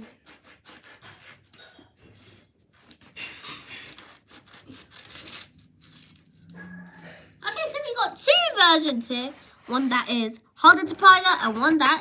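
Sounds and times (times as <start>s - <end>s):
paper being cut: 0.0s - 1.6s, 2.2s - 6.3s
paper rustling and scraping: 0.0s - 6.5s, 8.3s - 12.0s.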